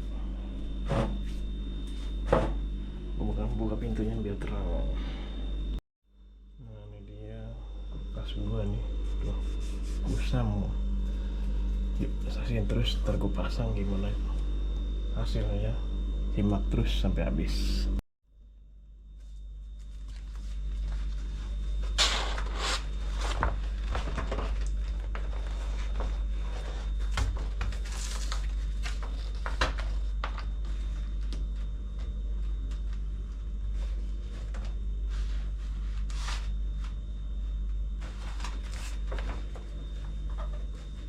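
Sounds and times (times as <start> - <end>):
steady low hum: 0.0 - 41.0
vinyl sticker rustling and scraping: 8.9 - 13.0, 19.2 - 41.0.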